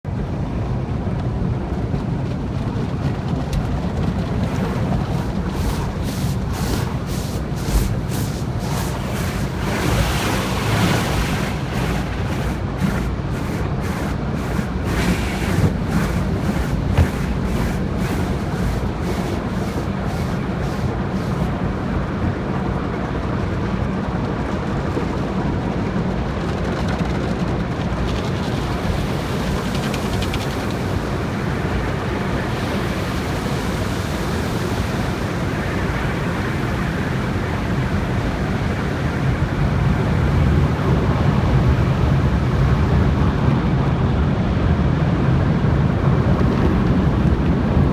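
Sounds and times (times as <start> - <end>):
low rumble of machinery: 0.0 - 47.9
car wash water spray: 2.8 - 23.8, 28.0 - 43.4.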